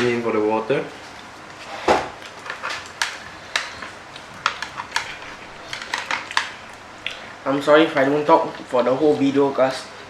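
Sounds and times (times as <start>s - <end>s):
eating clicks and smacks: 2.2s - 7.3s.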